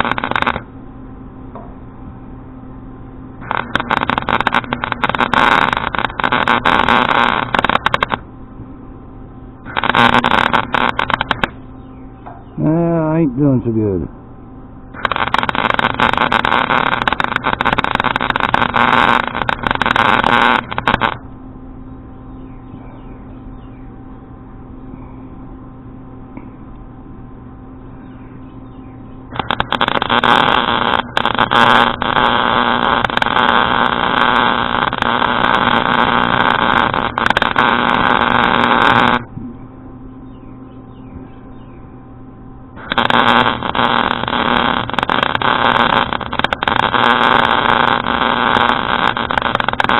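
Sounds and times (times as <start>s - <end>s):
welding arc crackling: 0.0s - 0.7s, 3.4s - 8.3s, 9.6s - 11.6s, 14.9s - 21.2s, 29.3s - 39.3s, 42.8s - 49.9s
machine hum: 0.0s - 49.9s.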